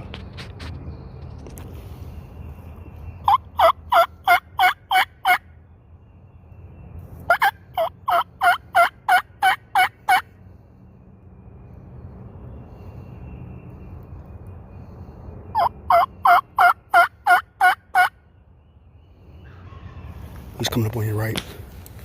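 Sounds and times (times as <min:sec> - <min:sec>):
turkey call yelps: 0:03.2 - 0:05.4, 0:07.3 - 0:10.3, 0:15.6 - 0:18.2.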